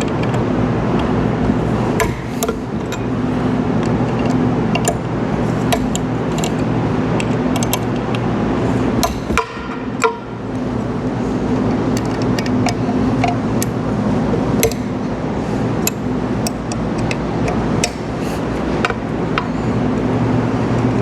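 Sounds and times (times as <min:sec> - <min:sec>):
steady low hum: 0:00.0 - 0:21.0
allen key clicking on bolts: 0:01.9 - 0:10.2, 0:11.9 - 0:19.6.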